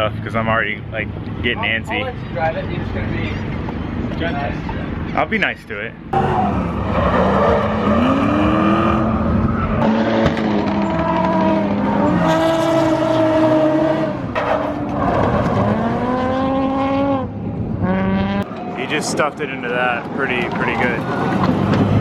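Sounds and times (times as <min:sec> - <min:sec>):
car engines revving: 0:06.0 - 0:22.0.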